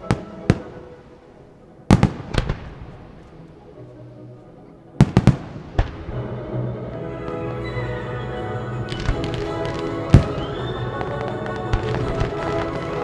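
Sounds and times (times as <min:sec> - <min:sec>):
fireworks bursting with bangs: 0:00.0 - 0:01.3, 0:01.9 - 0:03.3, 0:05.0 - 0:06.2, 0:08.9 - 0:13.0
faint music: 0:00.0 - 0:13.0.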